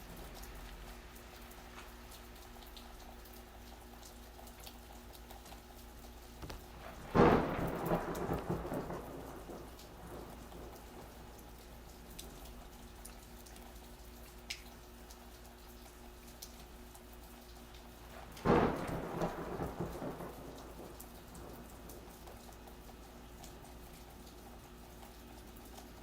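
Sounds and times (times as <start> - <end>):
gentle rain falling: 0.0 - 26.0
water drips: 0.0 - 26.0
thunderclap rumbling: 6.4 - 12.9, 18.1 - 23.4.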